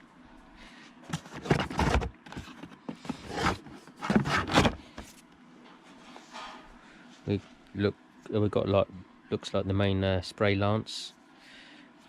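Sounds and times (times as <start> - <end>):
plastic packaging rustling: 1.1 - 5.1.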